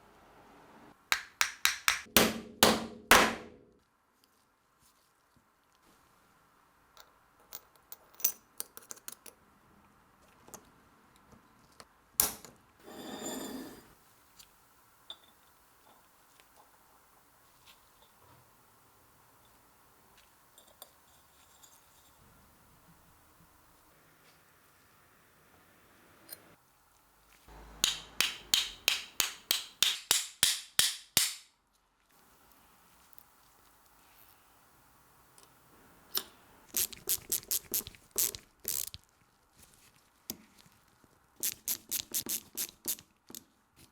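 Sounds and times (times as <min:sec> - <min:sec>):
small hard parts clicking: 0:36.2 - 0:39.0, 0:41.4 - 0:43.0.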